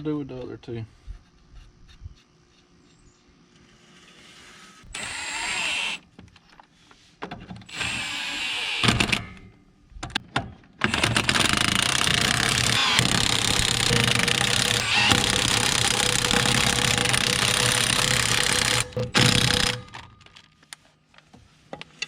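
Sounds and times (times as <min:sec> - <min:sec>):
impact wrench bursts: 0:04.9 - 0:06.0, 0:07.7 - 0:09.5, 0:10.8 - 0:20.1.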